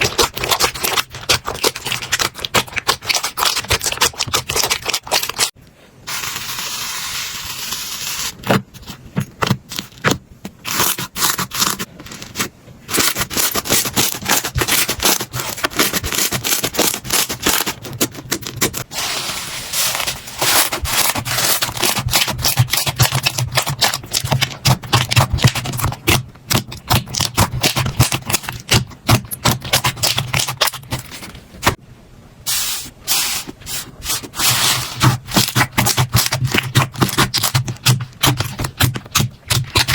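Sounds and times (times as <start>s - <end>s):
slime squishing and popping: 20.5s - 31.0s, 35.0s - 39.9s
steady hiss: 32.4s - 34.2s.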